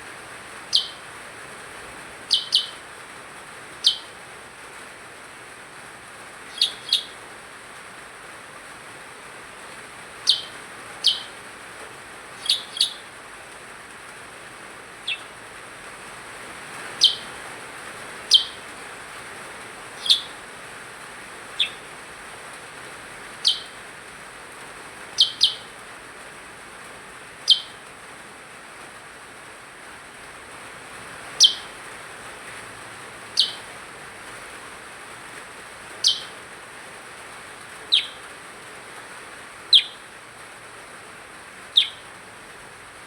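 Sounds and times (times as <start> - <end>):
faint hiss: 0.0 - 43.0
songbird chirping: 0.3 - 5.1, 6.0 - 7.9, 8.5 - 23.9, 25.0 - 25.9, 27.4 - 27.9, 31.2 - 32.0, 32.7 - 34.5, 35.8 - 36.5, 37.4 - 40.2, 41.3 - 43.0.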